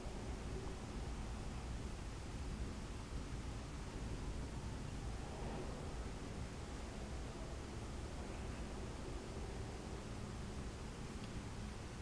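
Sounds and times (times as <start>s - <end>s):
even hiss: 0.0s - 12.0s
freight train rumbling past: 3.9s - 11.1s.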